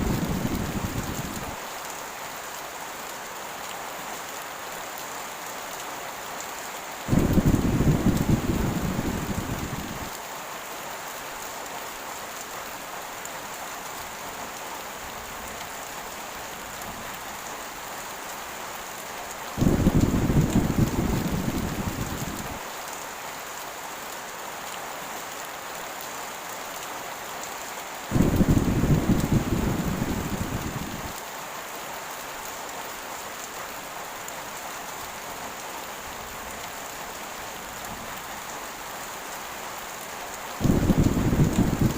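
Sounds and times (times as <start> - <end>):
thunder rolls: 0.0 - 1.6, 7.1 - 10.1, 19.6 - 22.6, 28.1 - 31.2, 40.6 - 41.9
heavy rain: 0.0 - 41.9.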